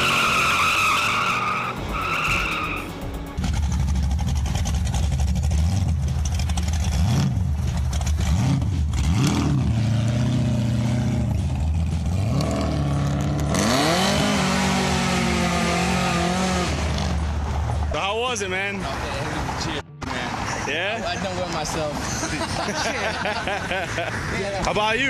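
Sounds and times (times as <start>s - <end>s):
car engine accelerating: 0.0s - 17.9s.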